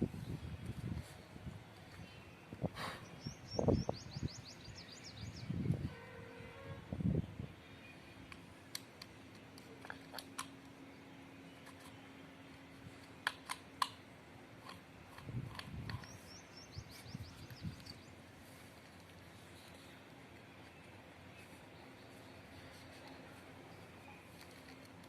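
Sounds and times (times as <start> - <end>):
small parts and tools clicking: 8.3 - 10.8, 14.6 - 16.4.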